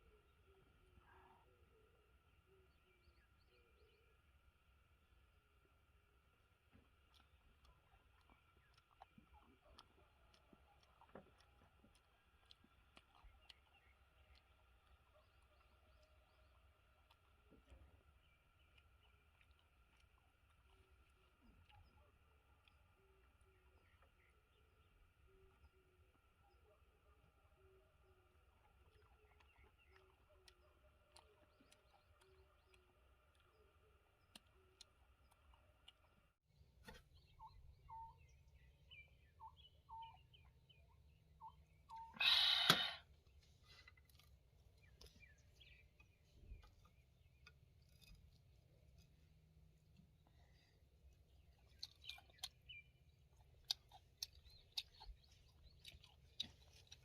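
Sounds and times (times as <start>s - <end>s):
crunchy chewing of food: 0.0s - 57.0s
faint short bird chirps: 36.8s - 38.3s, 41.4s - 43.1s.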